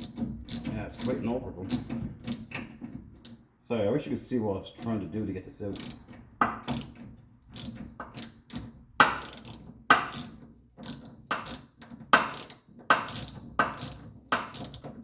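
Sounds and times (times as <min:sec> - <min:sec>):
socket ratchet clicking: 0:07.6 - 0:14.9.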